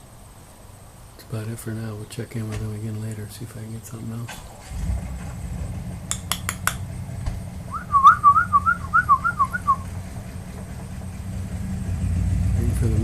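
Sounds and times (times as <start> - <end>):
steady low rumble: 0.8 - 13.0
sharp clicks: 6.1 - 6.9
whistled sliding notes: 7.7 - 9.9.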